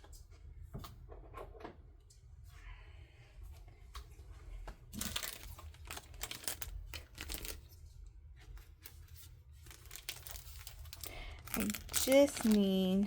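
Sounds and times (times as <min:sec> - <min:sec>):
packaging crinkling: 0:04.9 - 0:07.8, 0:08.5 - 0:13.0.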